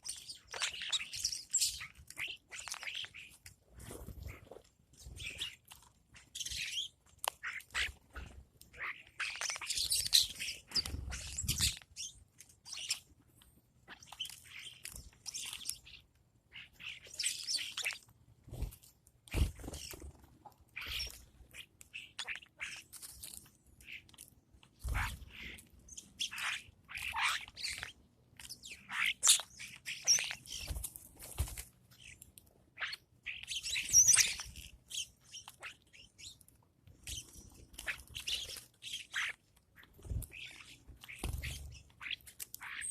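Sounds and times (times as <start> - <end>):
birds chirping: 0.0 - 18.7, 19.3 - 30.9, 31.8 - 42.9.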